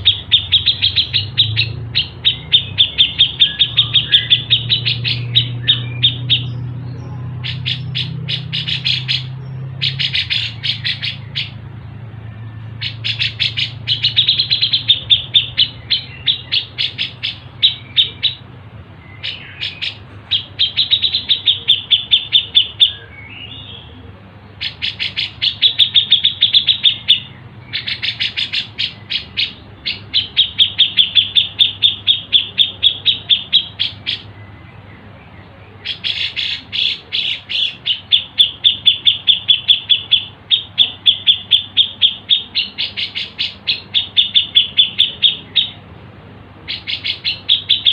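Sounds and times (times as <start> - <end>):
songbird chirping: 0.0 - 47.9.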